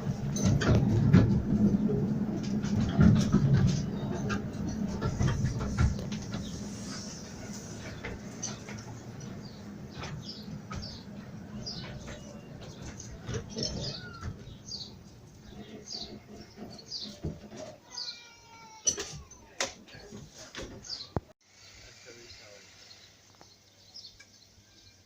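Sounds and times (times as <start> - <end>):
miniature train rumble: 0.0 - 20.2
bird chirping: 3.8 - 17.3.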